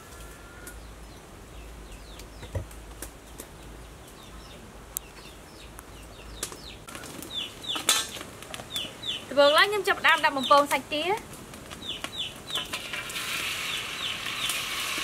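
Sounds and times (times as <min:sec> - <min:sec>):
small birds chirping: 0:00.0 - 0:14.7.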